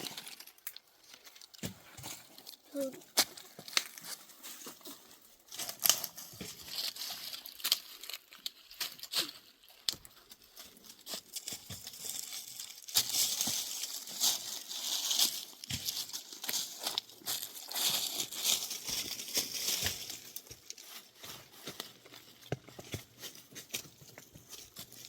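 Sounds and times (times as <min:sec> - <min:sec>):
rustling and crackling: 0:00.0 - 0:25.0.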